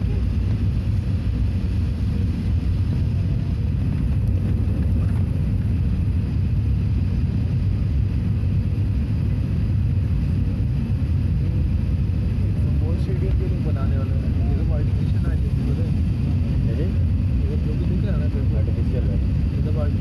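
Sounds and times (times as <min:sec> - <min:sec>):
airplane cabin engine drone: 0:00.0 - 0:20.0.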